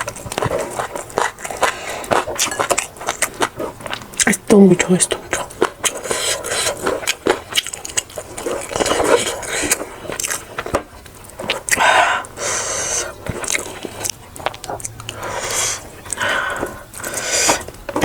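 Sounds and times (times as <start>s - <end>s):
chewing and biting: 0.0s - 18.0s.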